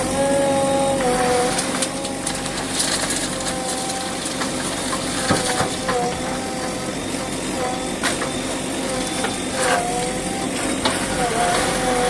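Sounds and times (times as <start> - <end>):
held whine dipping in pitch: 0.0 - 4.2, 5.2 - 12.0
diesel engine running: 0.0 - 12.0
knocks and clatters: 1.6 - 6.6.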